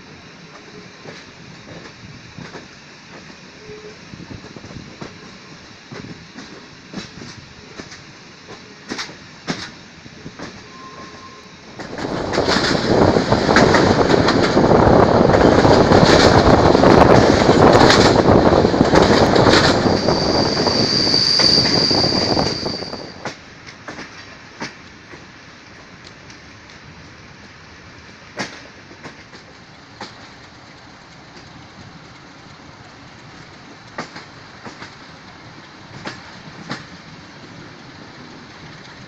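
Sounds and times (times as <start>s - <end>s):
wheels rushing on track: 0.0s - 39.0s
wheels clicking over rails: 4.4s - 39.0s
high wheel squeal: 10.6s - 11.7s, 19.0s - 23.3s.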